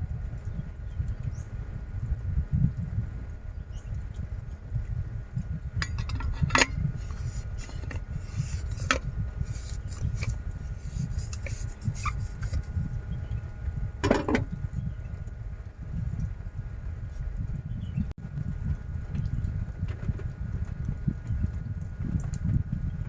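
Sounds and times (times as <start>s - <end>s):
clinks and knocks of objects: 5.8s - 10.4s.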